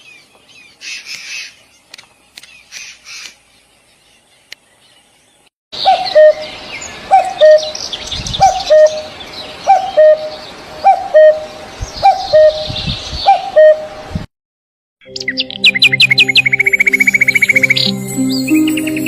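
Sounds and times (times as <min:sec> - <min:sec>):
low bird call: 0:08.4 - 0:13.9.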